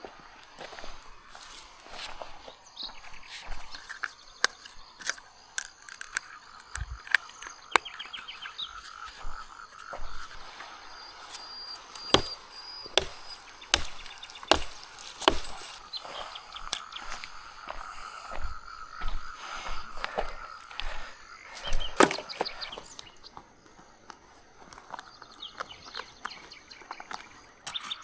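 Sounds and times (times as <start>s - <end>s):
wood being chopped: 11.6s - 17.3s, 21.7s - 23.0s.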